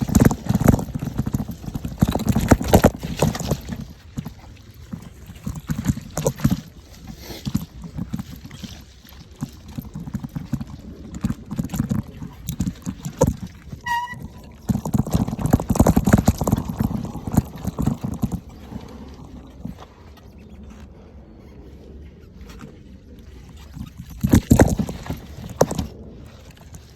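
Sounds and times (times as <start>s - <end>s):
bike rattling over rough trail: 0.0s - 26.9s
high squeak: 13.8s - 14.8s.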